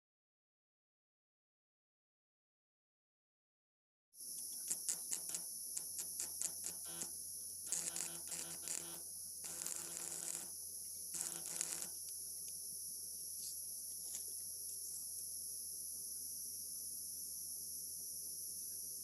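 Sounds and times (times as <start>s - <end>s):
steady high hiss: 4.2s - 19.0s
welding arc buzzing and crackling: 4.6s - 12.1s.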